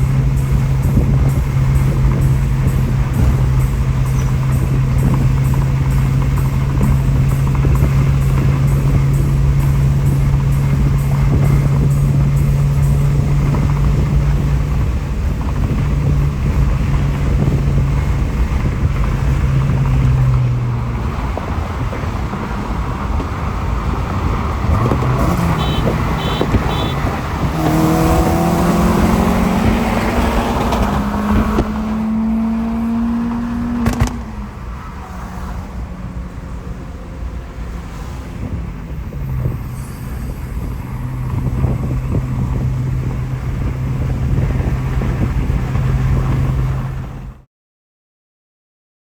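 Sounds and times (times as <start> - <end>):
car engine accelerating: 0.0 - 47.5
short high beeps: 25.2 - 27.2.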